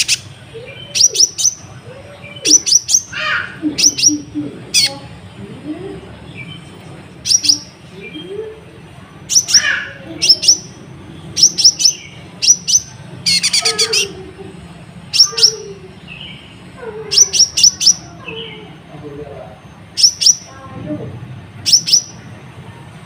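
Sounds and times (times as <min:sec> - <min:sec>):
bird singing in sharp high chirps: 0:00.0 - 0:05.0, 0:06.2 - 0:08.5, 0:09.2 - 0:14.2, 0:15.1 - 0:18.8, 0:19.8 - 0:20.6, 0:21.6 - 0:22.3.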